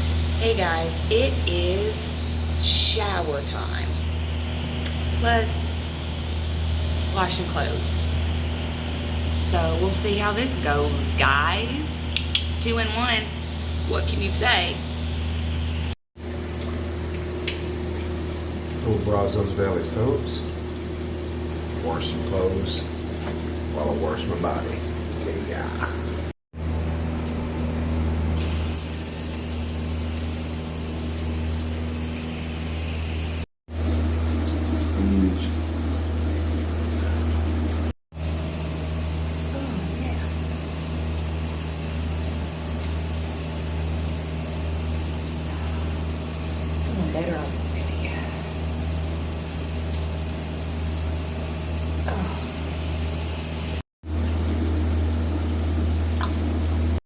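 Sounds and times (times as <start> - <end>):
steady low hum: 0.0 - 29.4, 33.7 - 49.6
water spraying from shower head: 28.4 - 33.5, 38.2 - 53.8
low steady hum: 33.8 - 43.8.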